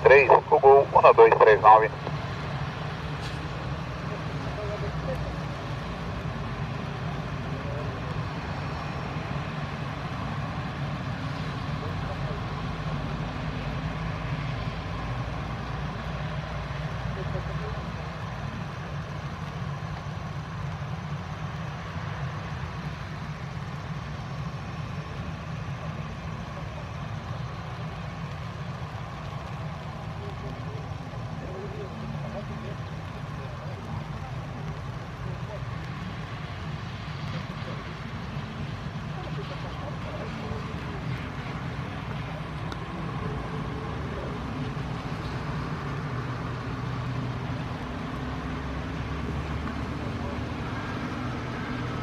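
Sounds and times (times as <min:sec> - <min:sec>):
jet engines idling: 0:00.0 - 0:51.7.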